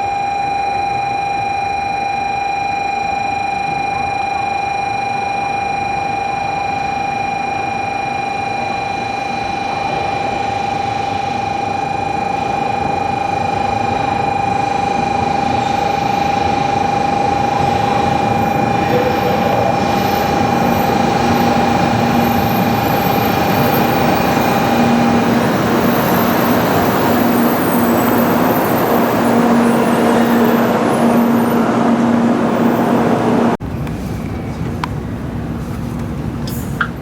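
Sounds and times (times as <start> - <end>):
held whine: 0.0 - 33.6
train running rush: 13.6 - 37.0.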